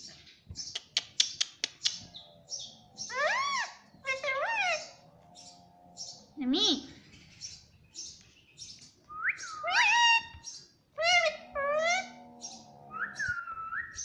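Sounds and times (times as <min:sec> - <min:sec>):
parrot chirping: 0:09.2 - 0:14.0.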